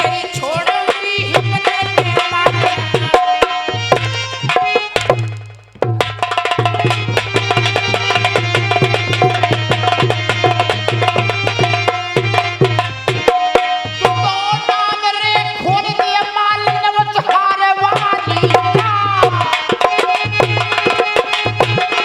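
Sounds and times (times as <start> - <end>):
hand drum playing fast strokes: 1.4 - 13.9
pitched melody line bending: 2.3 - 14.5.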